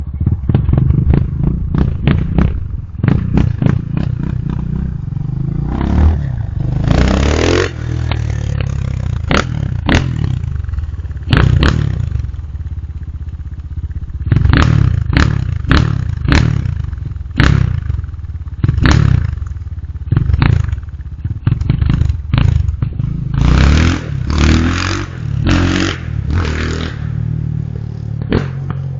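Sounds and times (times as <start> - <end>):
motorcycle engine revving: 0.0 - 28.9.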